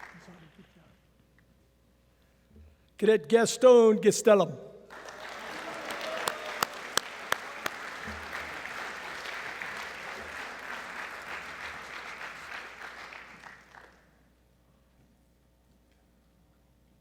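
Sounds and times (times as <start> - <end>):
audience applauding: 0.0 - 0.6, 4.9 - 14.1.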